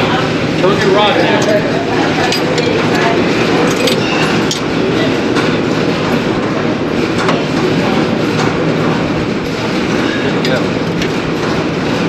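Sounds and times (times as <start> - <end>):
rattling mechanical rumble: 0.0 - 12.0.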